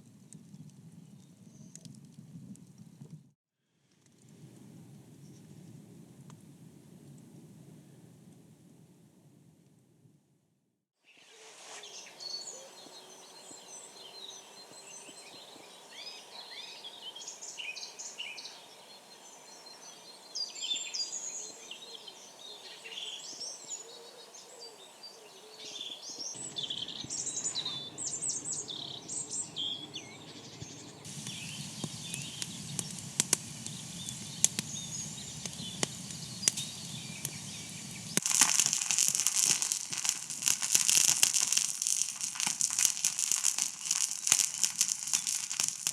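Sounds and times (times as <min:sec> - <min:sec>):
songbirds chirping: 0:11.8 - 0:45.9
dense crackling: 0:31.1 - 0:45.9.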